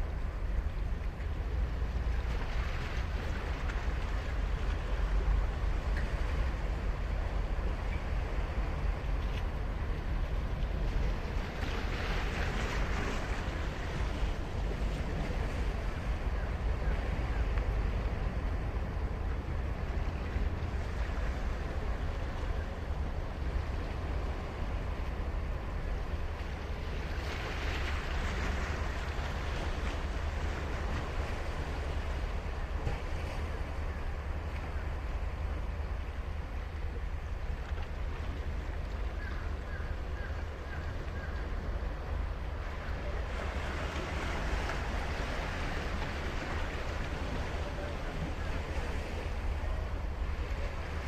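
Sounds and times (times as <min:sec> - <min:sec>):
ocean waves breaking on beach: 0:00.0 - 0:51.0
wind rumble on microphone: 0:00.0 - 0:51.0
ocean waves on sandy beach: 0:38.4 - 0:51.0.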